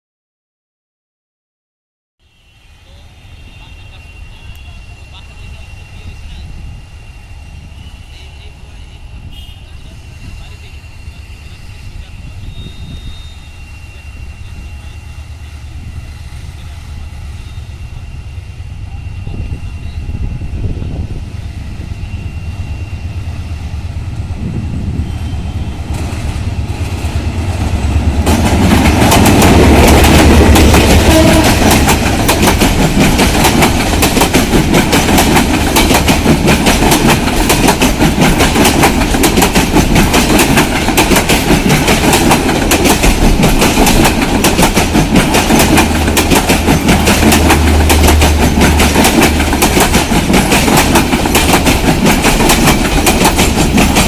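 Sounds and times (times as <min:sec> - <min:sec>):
diesel locomotive engine rumble: 0:02.4 - 0:54.0
wheels clattering over rail joints: 0:28.2 - 0:54.0.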